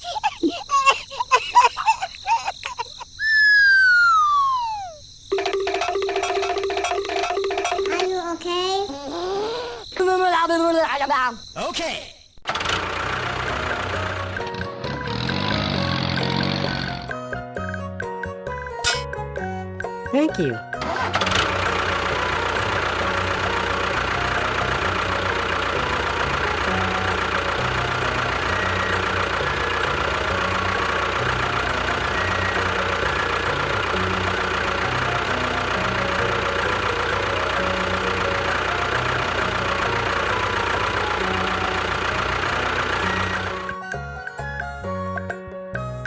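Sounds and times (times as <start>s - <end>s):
heavy engine running: 12.5s - 17.3s, 20.3s - 45.9s.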